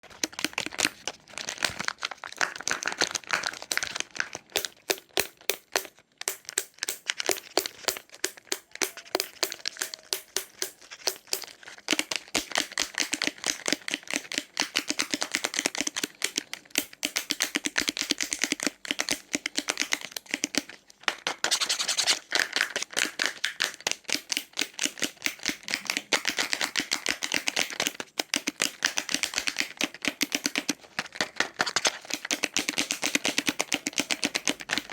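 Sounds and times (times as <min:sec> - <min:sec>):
candy wrappers crinkling: 0:00.0 - 0:15.2, 0:17.6 - 0:24.4.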